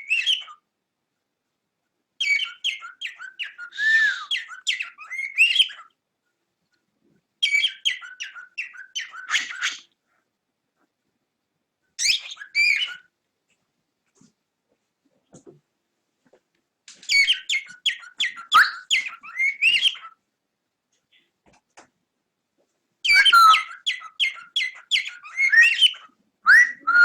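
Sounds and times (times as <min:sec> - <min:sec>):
cockatiel chirping and whistling: 0:00.0 - 0:00.6, 0:02.2 - 0:05.9, 0:07.4 - 0:09.8, 0:12.0 - 0:13.1, 0:17.1 - 0:20.1, 0:23.0 - 0:27.0.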